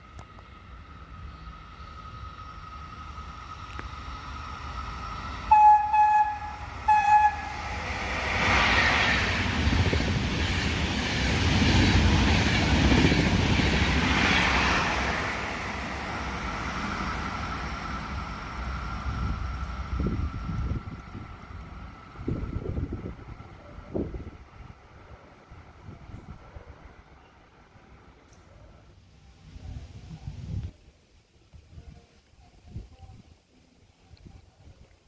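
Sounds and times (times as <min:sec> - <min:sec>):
train rushing past: 0:00.0 - 0:28.2
train horn blasts: 0:05.5 - 0:07.9.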